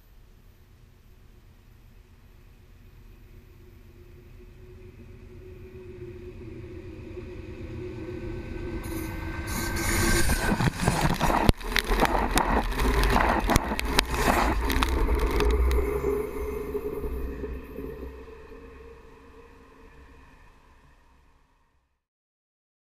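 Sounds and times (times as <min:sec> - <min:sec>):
train rumbling: 0:01.4 - 0:21.0
wheels clanking and scraping: 0:08.9 - 0:17.7.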